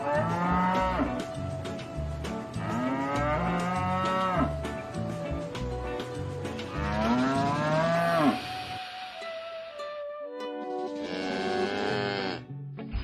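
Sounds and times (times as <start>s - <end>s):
cattle mooing: 0.0s - 1.2s, 2.6s - 4.6s, 6.7s - 8.4s, 11.0s - 12.5s.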